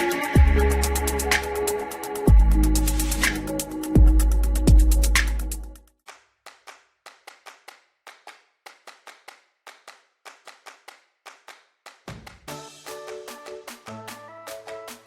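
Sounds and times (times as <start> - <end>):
music: 0.0 - 5.9, 12.1 - 15.0.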